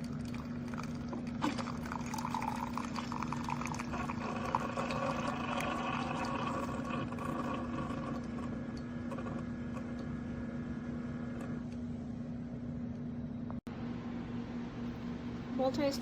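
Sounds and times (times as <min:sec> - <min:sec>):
coffee splashing into cup: 0:00.0 - 0:08.5
coffee maker pump humming: 0:00.0 - 0:16.0.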